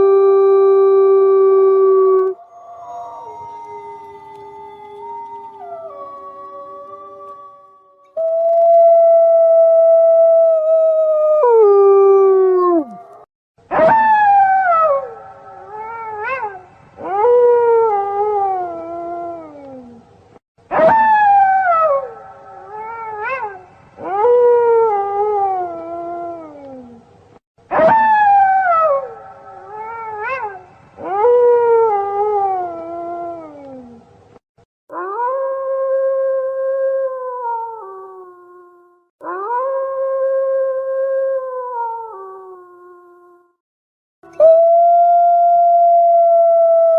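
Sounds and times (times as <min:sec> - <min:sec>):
wolves howling: 0:01.2 - 0:08.2.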